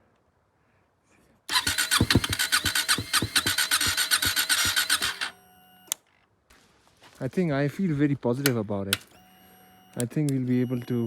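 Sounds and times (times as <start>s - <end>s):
motorcycle engine cold-starting: 1.5s - 5.4s.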